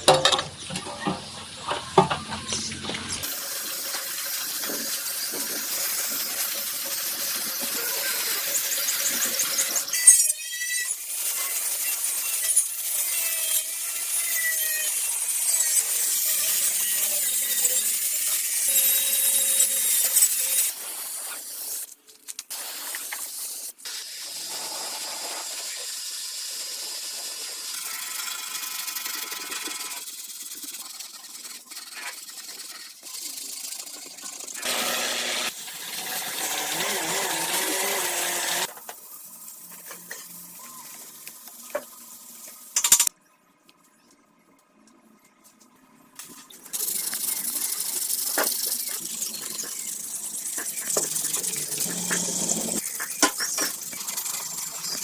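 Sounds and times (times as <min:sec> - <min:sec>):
tool scraping hiss: 0:03.2 - 0:38.8, 0:46.7 - 0:55.0.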